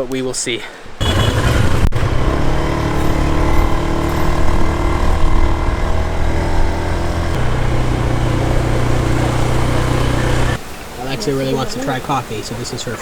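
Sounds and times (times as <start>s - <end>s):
small motorcycle engine running: 1.0s - 10.6s.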